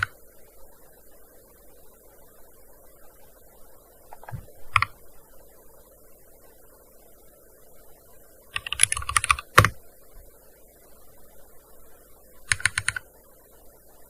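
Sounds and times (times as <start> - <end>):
keyboard typing: 4.1 - 5.0, 8.6 - 9.8, 12.5 - 13.0.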